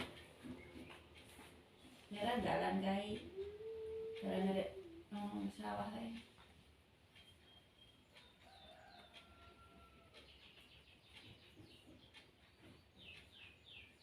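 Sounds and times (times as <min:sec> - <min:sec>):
faint bird chirps: 0:07.1 - 0:14.0.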